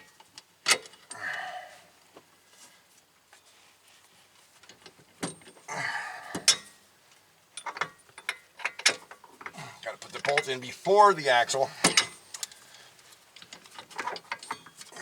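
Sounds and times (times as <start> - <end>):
metal tools clinking: 10.0 - 10.6.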